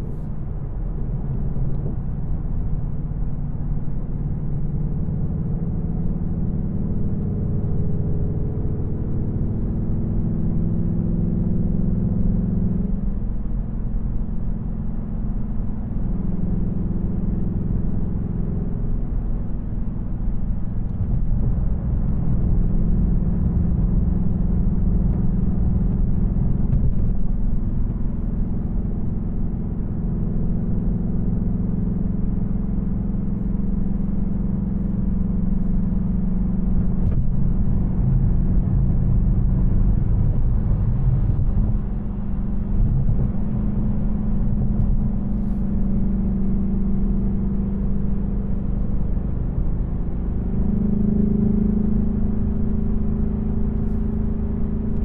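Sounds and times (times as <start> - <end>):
car engine cruising: 0.0 - 55.0
road rumble: 0.0 - 55.0.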